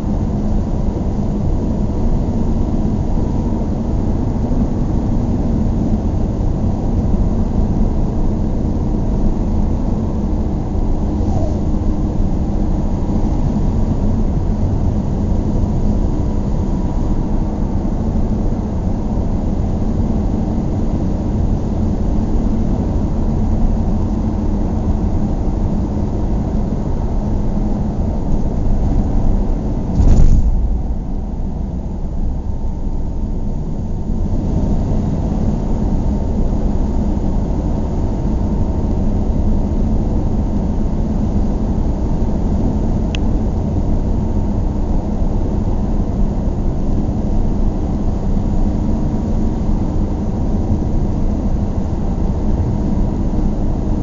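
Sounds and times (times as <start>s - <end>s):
moving vehicle rumble: 9.1s - 16.0s, 24.5s - 37.1s
loud bump: 29.9s - 32.5s.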